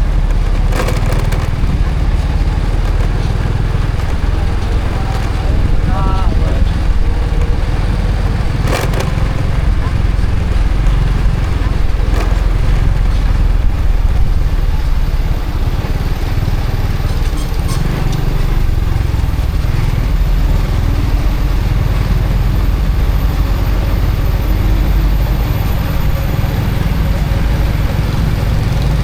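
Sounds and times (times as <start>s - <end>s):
motorcycle engine running: 0.0s - 29.0s
wind rumbling on microphone: 0.0s - 29.0s.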